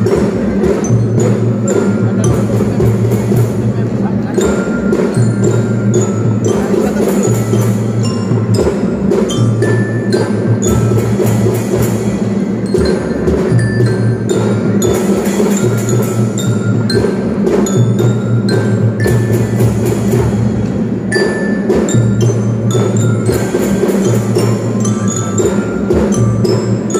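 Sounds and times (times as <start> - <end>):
drums beaten in march rhythm: 0.0 - 26.9
ringing bell-lyre notes: 0.0 - 26.9.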